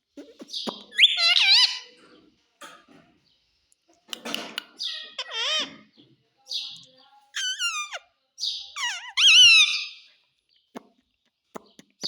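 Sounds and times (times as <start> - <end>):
parrot screeching and squawking: 0.9 - 2.0, 4.7 - 5.9, 7.4 - 10.1.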